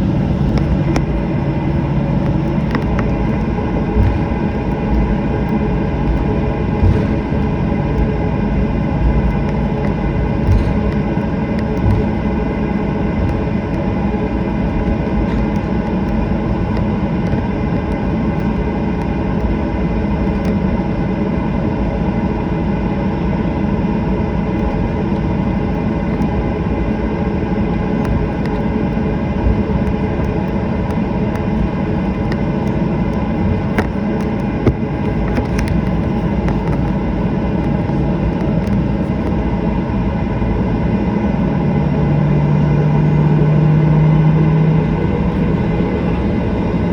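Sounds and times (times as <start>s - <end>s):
faint clicks and rattles: 0.0s - 21.0s, 24.3s - 39.8s
jet engines idling hum: 0.0s - 46.9s.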